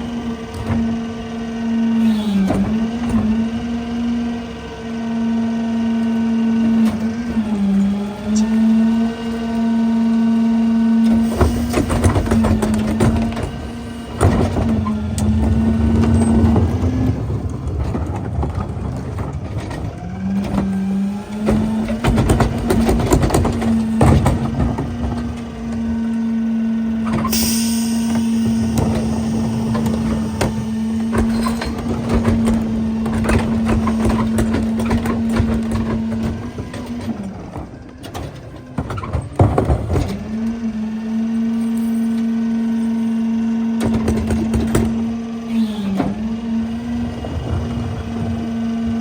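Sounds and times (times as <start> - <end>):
hydraulic packer whine: 0.0 - 49.0
air hiss: 27.2 - 32.2.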